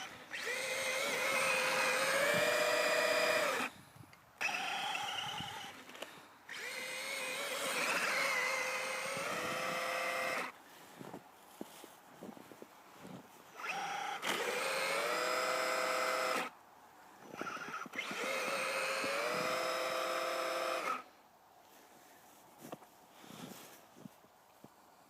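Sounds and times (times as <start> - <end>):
electric motor whining: 0.0 - 3.7, 4.4 - 10.5, 13.6 - 16.5, 17.2 - 21.0.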